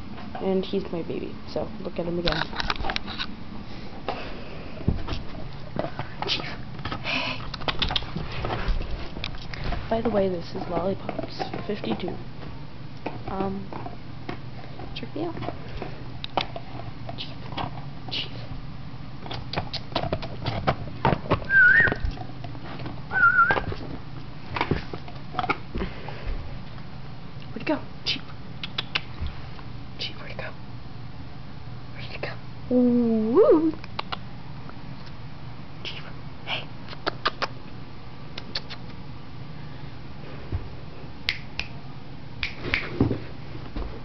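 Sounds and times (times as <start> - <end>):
person whistling for a dog: 21.5 - 22.0, 23.1 - 23.7.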